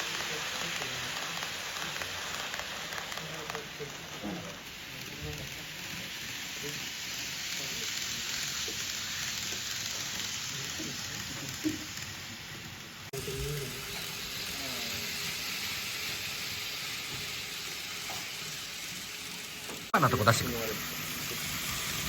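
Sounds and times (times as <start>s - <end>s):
faint voices: 0.0s - 12.0s
model train wheels and motors hissing: 0.0s - 22.0s.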